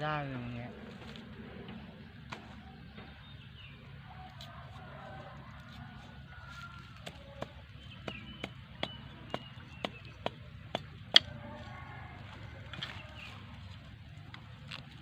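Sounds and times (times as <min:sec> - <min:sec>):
tool knocking on bamboo: 0:07.0 - 0:11.4.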